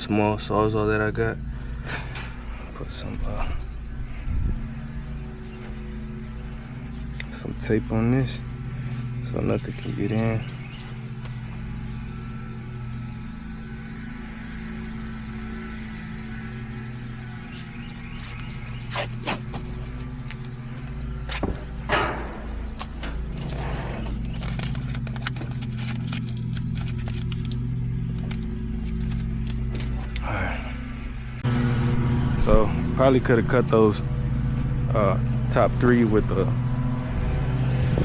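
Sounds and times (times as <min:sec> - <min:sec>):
low motor hum: 0:00.0 - 0:38.0
tape ripping: 0:18.2 - 0:19.9, 0:23.0 - 0:30.2.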